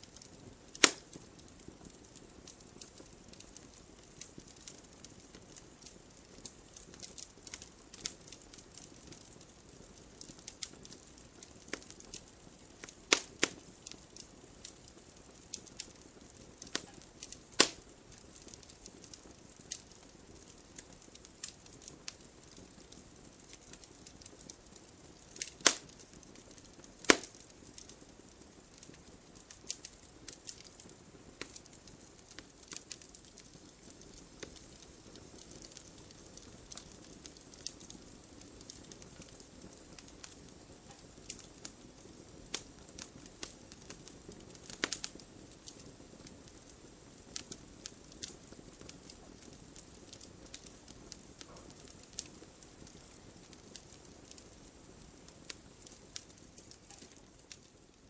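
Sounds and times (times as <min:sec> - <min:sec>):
wood fire crackling: 0:00.0 - 0:58.0
loud sharp pops: 0:00.8 - 0:01.0, 0:17.6 - 0:17.8, 0:25.5 - 0:26.0, 0:27.0 - 0:27.4.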